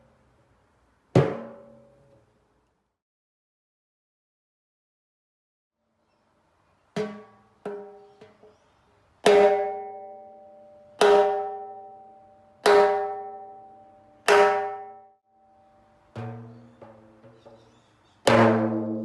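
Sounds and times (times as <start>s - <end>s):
timbales struck with a stick: 1.2s - 1.9s, 7.0s - 8.4s, 9.2s - 10.4s, 11.0s - 12.0s, 12.6s - 15.1s, 16.1s - 19.0s.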